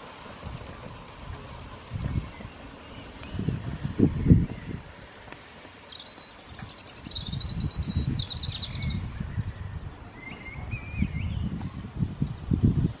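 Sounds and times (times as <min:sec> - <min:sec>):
songbird singing: 0:01.6 - 0:11.9.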